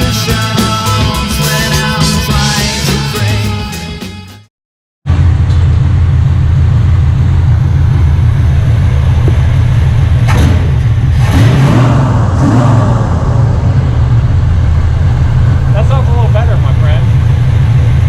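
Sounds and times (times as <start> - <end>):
deep car exhaust rumble: 5.0 - 18.0.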